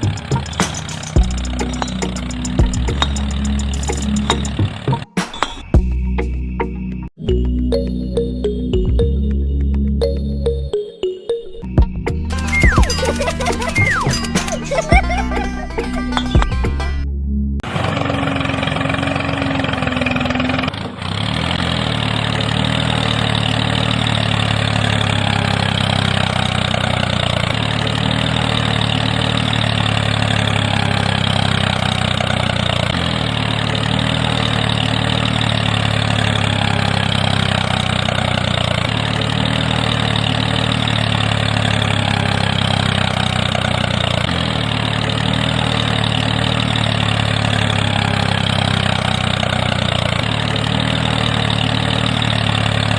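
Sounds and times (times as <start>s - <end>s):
engine idling: 0.0s - 5.1s, 11.7s - 52.9s.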